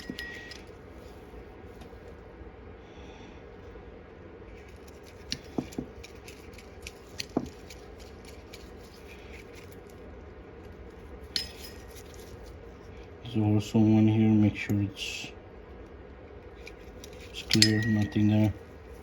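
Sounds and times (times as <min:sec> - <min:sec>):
small metal parts clicking: 0:00.0 - 0:00.7, 0:16.6 - 0:18.6
faint steady hum: 0:00.0 - 0:19.0.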